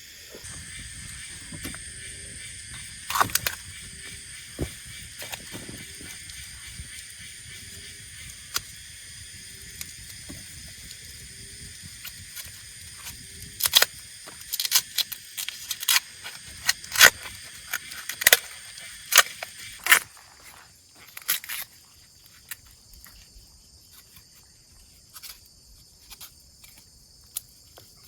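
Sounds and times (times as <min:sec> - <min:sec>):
high-pitched insect drone: 0:00.0 - 0:25.5
sharp irregular cracks and clicks: 0:02.7 - 0:07.2, 0:12.0 - 0:20.2.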